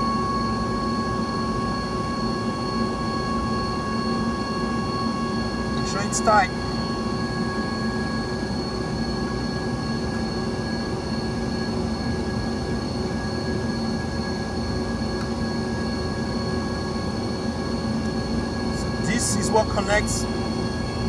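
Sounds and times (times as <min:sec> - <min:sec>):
machinery droning: 0:05.0 - 0:07.2, 0:18.0 - 0:21.0.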